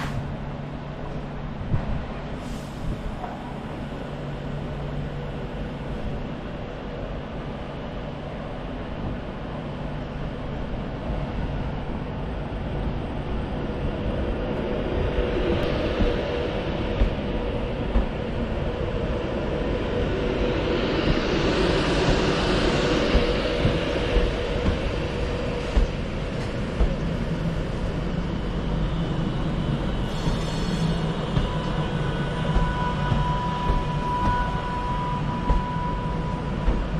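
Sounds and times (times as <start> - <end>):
faint whine: 0.0 - 36.9
train rumbling: 0.0 - 36.9
low knocks: 17.0 - 18.2, 23.1 - 27.2, 31.2 - 36.9.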